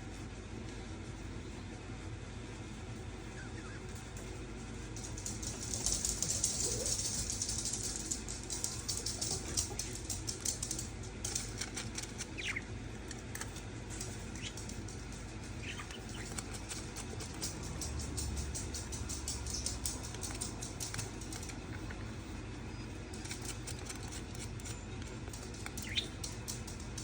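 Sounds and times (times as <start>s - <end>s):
budgies chattering: 12.2s - 12.8s, 14.1s - 14.8s, 15.5s - 17.0s, 25.5s - 26.4s.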